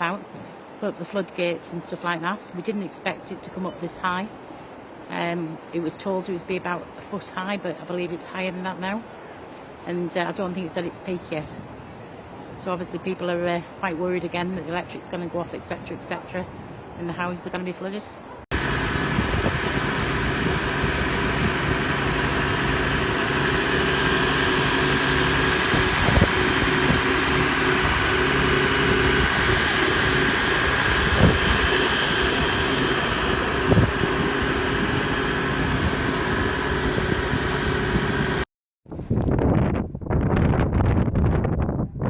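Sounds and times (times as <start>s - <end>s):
engine idling: 18.5s - 38.5s.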